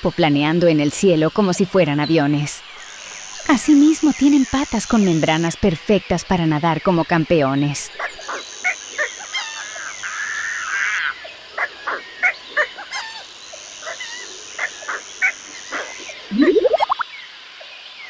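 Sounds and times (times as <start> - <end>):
high insect-like whine: 2.6 - 5.7, 8.1 - 18.0
rising pulsing call: 16.3 - 17.0.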